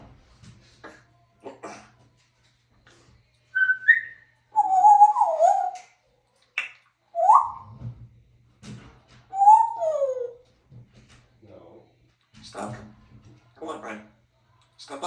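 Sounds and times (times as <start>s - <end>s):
parrot whistling: 3.6s - 5.9s, 6.6s - 7.8s, 9.3s - 10.4s.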